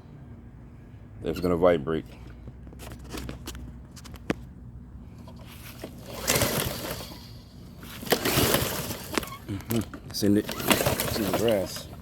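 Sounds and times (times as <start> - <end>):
engine turning over: 5.2 - 12.0
recoil starter pulled: 5.2 - 12.0.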